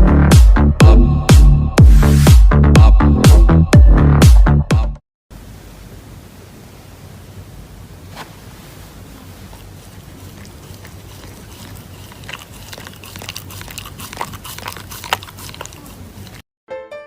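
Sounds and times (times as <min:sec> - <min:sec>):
pet chewing with crunchy clicks: 0:09.4 - 0:16.4.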